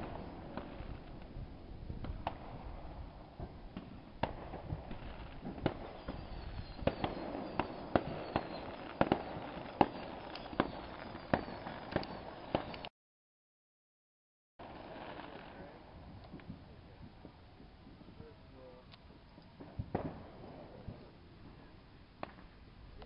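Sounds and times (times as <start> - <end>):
distant firework bangs: 0.0 - 12.8, 19.5 - 21.6
faint falling whistles: 5.8 - 12.9.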